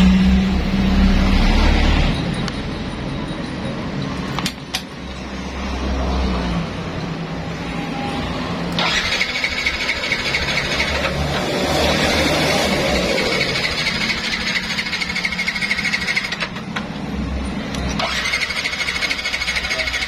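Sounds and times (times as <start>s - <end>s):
scooter starter cranking engine: 8.8s - 16.8s, 17.9s - 20.0s.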